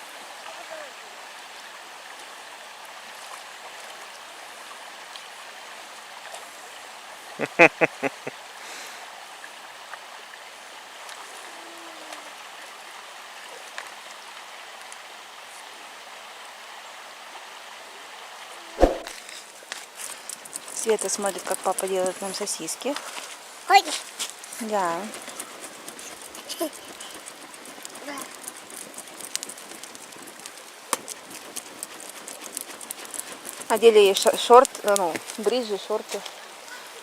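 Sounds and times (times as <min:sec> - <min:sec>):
quick loud pitched sounds: 0:18.8 - 0:19.1.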